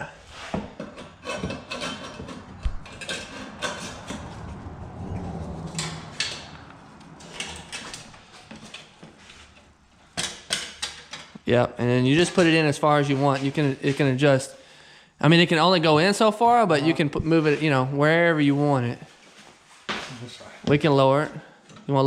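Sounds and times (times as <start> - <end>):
metal clinks taps and scrapes: 0.3 - 4.6, 5.7 - 11.4.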